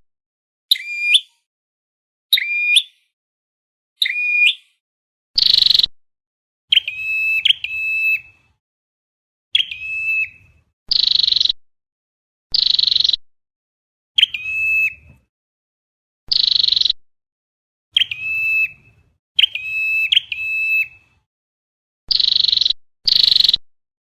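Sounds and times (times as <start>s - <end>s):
recorded bird calls: 0.7s - 1.5s, 2.3s - 3.2s, 4.0s - 4.8s, 5.4s - 5.9s, 6.7s - 8.6s, 9.5s - 11.6s, 12.5s - 13.2s, 14.2s - 15.3s, 16.3s - 17.0s, 17.9s - 21.3s, 22.1s - 23.6s
harsh buzzy bird calls: 5.4s - 5.9s, 6.7s - 8.6s, 9.5s - 11.6s, 12.5s - 13.2s, 16.3s - 17.0s, 19.4s - 21.1s, 22.1s - 23.6s.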